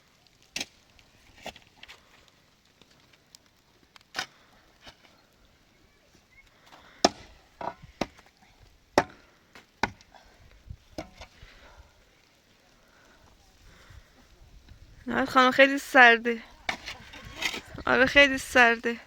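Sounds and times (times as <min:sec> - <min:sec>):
wood being struck: 0:07.0 - 0:08.2, 0:09.0 - 0:09.2, 0:09.8 - 0:10.1.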